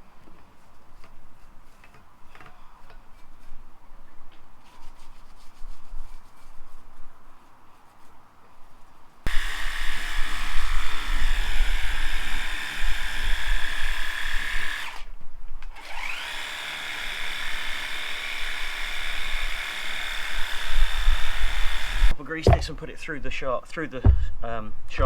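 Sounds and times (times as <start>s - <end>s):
electric tool motor whining: 9.3s - 15.1s, 15.7s - 22.2s.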